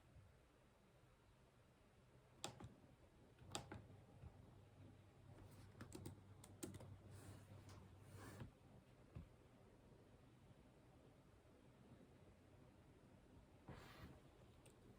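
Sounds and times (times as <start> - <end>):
mouse and keyboard clicks: 2.4 - 2.7.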